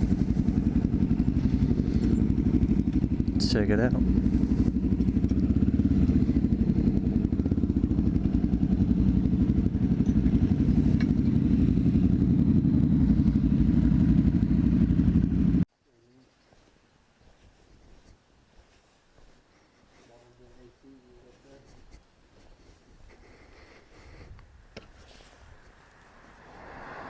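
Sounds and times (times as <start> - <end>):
motorcycle engine running: 0.0 - 15.7.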